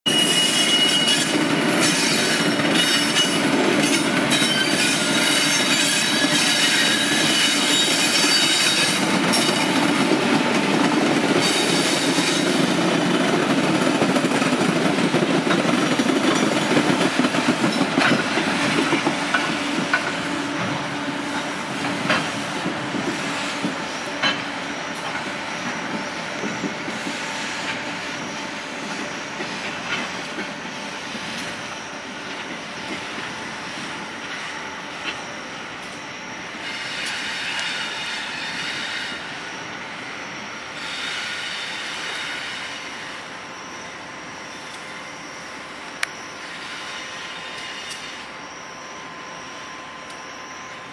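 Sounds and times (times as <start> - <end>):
train wheels squealing: 0.1 - 50.9.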